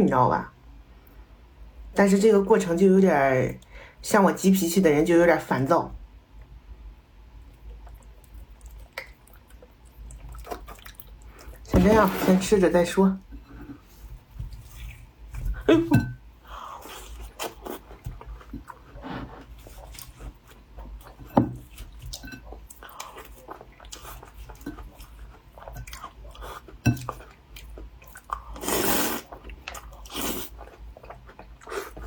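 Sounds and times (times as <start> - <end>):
person chewing crunchy pastry: 7.4 - 11.7, 16.5 - 32.0.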